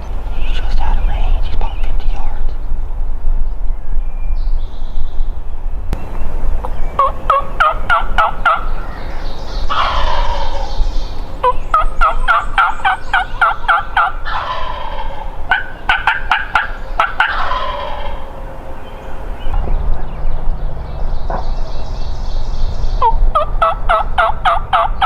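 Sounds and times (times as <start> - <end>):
turkey gobble: 6.6 - 10.8, 11.4 - 18.3, 23.0 - 25.0
turkey yelping: 6.6 - 18.4, 23.0 - 25.0.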